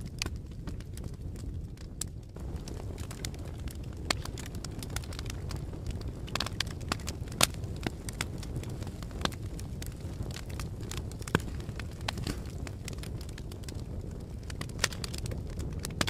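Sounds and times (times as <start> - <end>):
fire crackling: 0.0 - 16.0.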